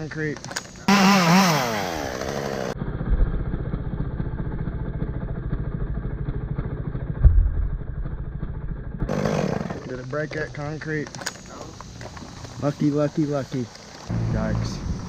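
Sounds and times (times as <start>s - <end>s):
small engine idling: 1.7s - 10.0s
low thump: 7.2s - 8.8s.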